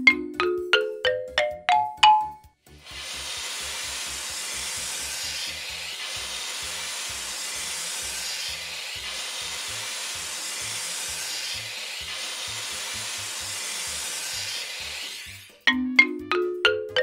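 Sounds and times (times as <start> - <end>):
rising xylophone run: 0.0 - 2.6, 15.6 - 17.0
spraying hiss of nozzle: 2.8 - 15.0.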